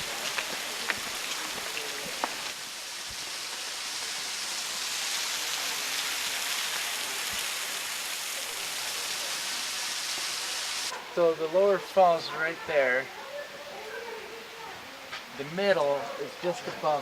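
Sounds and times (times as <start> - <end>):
waterfall into a pool: 0.0 - 10.9.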